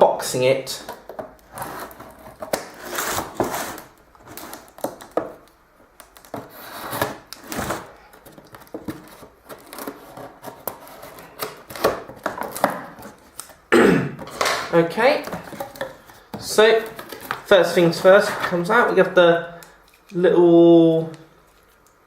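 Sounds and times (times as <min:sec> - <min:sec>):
cardboard rustling and scraping: 0:00.8 - 0:05.4, 0:06.2 - 0:13.6, 0:14.2 - 0:19.1.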